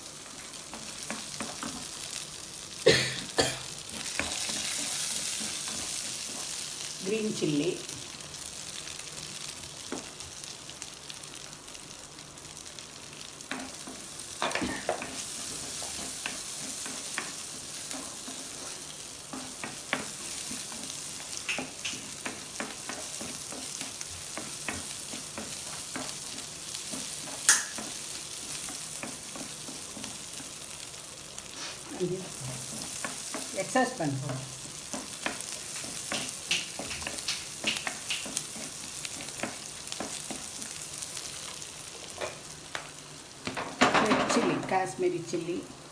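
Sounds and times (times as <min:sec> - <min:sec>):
food sizzling in butter: 0:00.0 - 0:45.9
spatula scraping and tapping pan: 0:00.5 - 0:02.2, 0:03.9 - 0:06.9, 0:13.4 - 0:30.8, 0:31.4 - 0:44.4.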